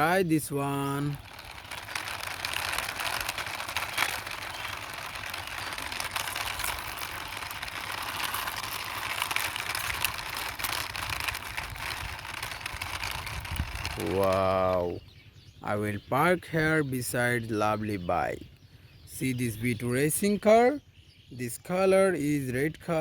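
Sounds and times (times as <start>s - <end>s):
toy car wheels rolling: 0.0s - 15.0s.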